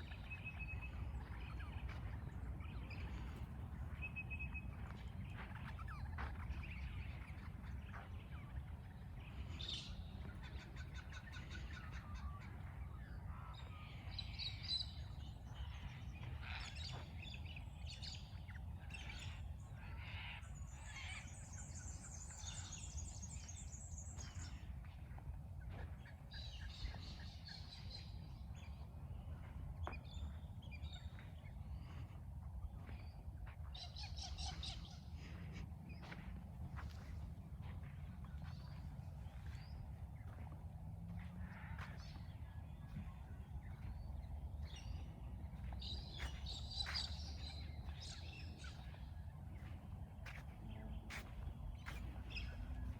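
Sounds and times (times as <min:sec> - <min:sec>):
birds calling and chirping: 0:00.0 - 0:52.9
steady low rumble: 0:00.0 - 0:52.9.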